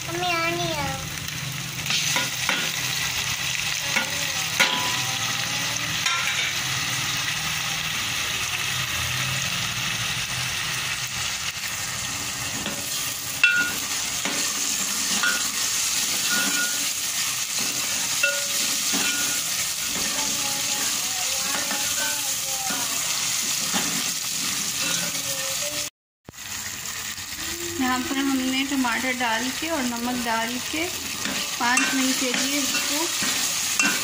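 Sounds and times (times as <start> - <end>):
tomatoes sizzling in hot oil: 0.0 - 34.0
ladle clinking against pot: 31.2 - 34.0.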